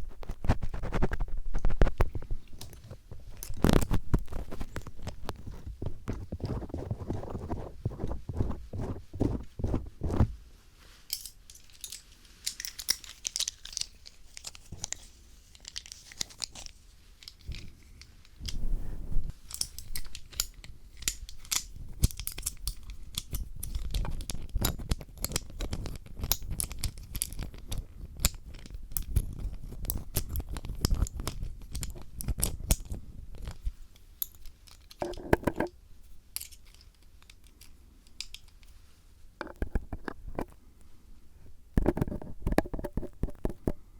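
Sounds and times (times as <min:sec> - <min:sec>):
screwdriver scraping a microphone: 0:00.0 - 0:10.3.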